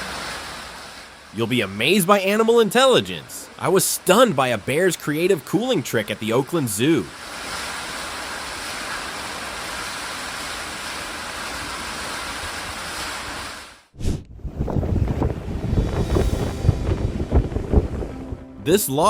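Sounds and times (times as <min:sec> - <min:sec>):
running water: 0:00.0 - 0:13.8
low rumbling noise: 0:14.0 - 0:19.0.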